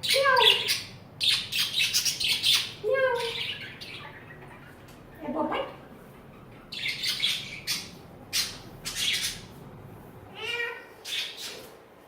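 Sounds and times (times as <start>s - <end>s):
parrot squawking: 0.0s - 4.8s, 6.3s - 9.5s.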